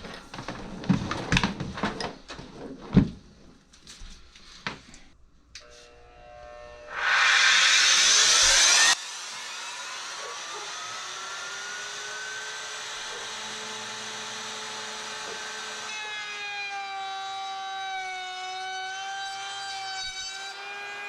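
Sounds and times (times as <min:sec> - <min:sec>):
router cutting wood: 0:05.6 - 0:21.0
wood router motor whine: 0:05.6 - 0:21.0.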